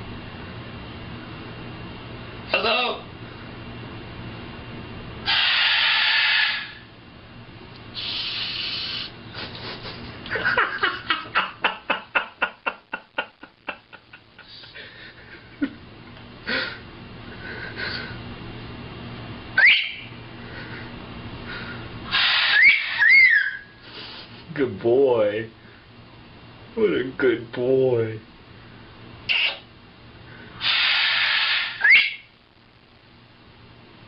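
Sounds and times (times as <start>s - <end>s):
macaw rising squeak: 5.3s - 6.8s, 19.6s - 20.1s, 22.2s - 23.7s, 30.7s - 32.3s
macaw shushing hisses: 5.3s - 6.8s, 7.9s - 10.0s, 21.6s - 23.0s, 23.8s - 24.5s, 30.6s - 31.9s.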